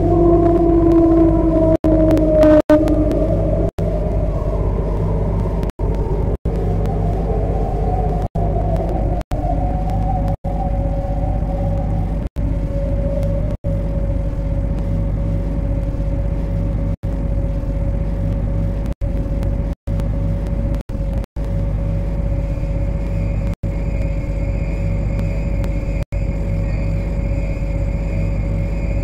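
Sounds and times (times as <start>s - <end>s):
higher steady tones: 0.0s - 17.0s
constant mid-pitched tone: 0.0s - 29.0s
train rumble and hum: 0.0s - 29.0s.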